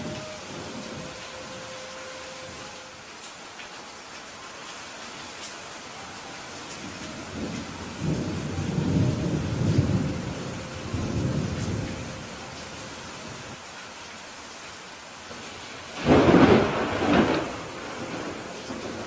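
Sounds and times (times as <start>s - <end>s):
thunder rumbling: 0.0s - 2.8s, 6.8s - 13.6s, 16.0s - 19.0s
steady rain falling: 0.0s - 19.0s.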